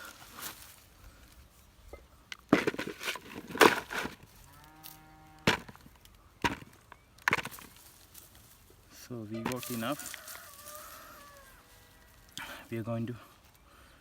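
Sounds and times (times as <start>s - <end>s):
tool scraping in soil: 0.0s - 0.9s, 2.4s - 6.7s, 7.3s - 12.4s
cow mooing: 4.5s - 5.6s.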